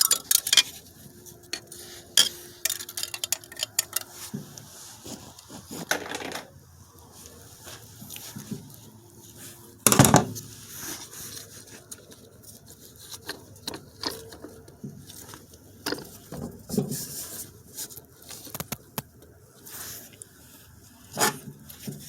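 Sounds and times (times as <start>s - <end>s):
metal parts and tools clinking: 0.0s - 4.6s.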